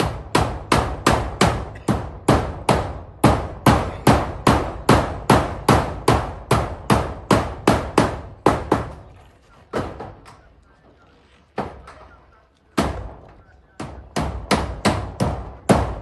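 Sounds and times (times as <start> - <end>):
hammer driving nails: 0.0 - 9.0, 13.8 - 16.0.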